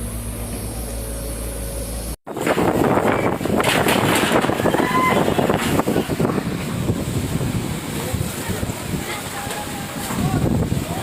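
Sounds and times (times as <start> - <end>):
low mechanical hum: 0.0 - 8.3
strong wind gusting on microphone: 2.3 - 11.0
rain: 3.6 - 11.0.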